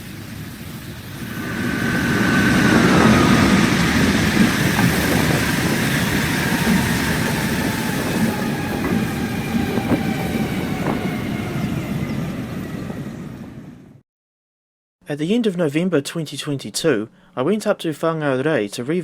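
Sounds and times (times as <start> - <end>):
train running on rails: 0.0 - 14.0
train wheel clicks: 2.9 - 11.4.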